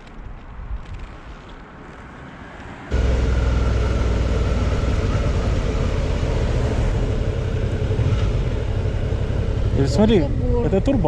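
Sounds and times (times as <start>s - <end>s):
motorcycle engine running: 2.9s - 11.0s.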